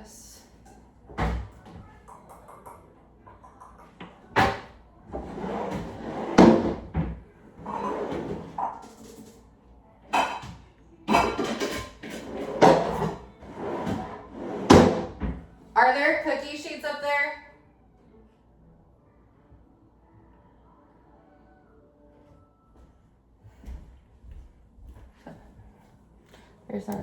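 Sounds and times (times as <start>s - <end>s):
drawers clattering: 4.4s - 9.3s, 11.1s - 15.4s.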